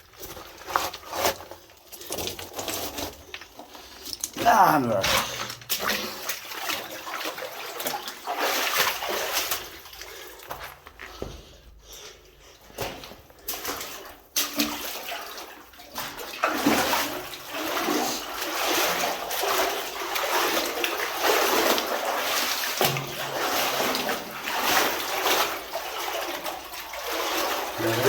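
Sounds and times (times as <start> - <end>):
person wading through water: 4.3 - 10.9.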